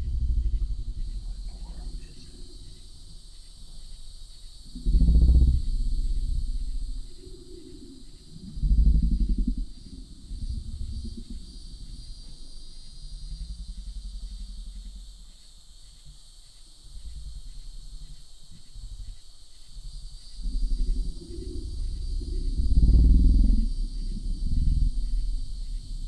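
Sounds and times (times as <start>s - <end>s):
loud low wavering drone: 0.0s - 3.9s, 4.6s - 12.2s, 19.9s - 26.0s.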